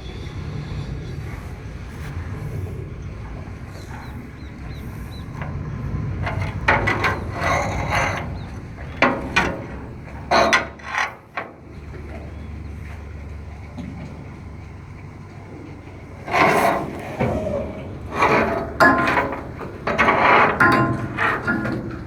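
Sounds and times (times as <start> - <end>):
boat engine running: 0.0 - 22.0
wood scraping and rubbing: 1.9 - 11.4, 16.2 - 22.0.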